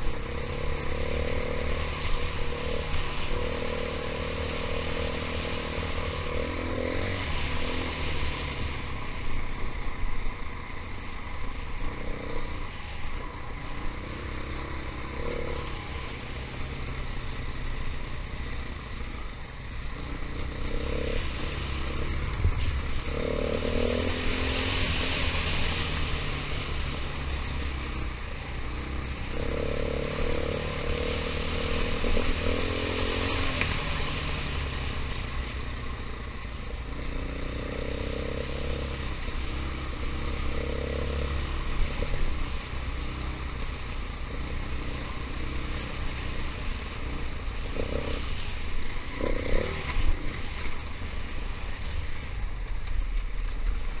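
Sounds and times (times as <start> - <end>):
dirt bike engine revving: 20.0 - 35.0, 44.2 - 50.7.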